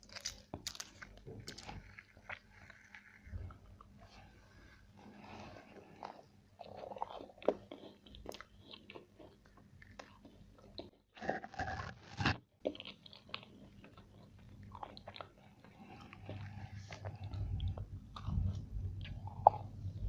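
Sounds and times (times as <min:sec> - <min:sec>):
crunchy food crunches: 0:00.0 - 0:04.2, 0:05.2 - 0:19.7
low rumble: 0:16.4 - 0:20.0.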